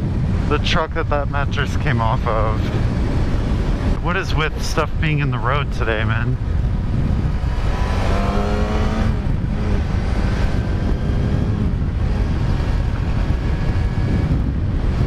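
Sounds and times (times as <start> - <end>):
motorcycle engine accelerating: 0.0 - 15.0
wind rushing on microphone: 0.0 - 15.0.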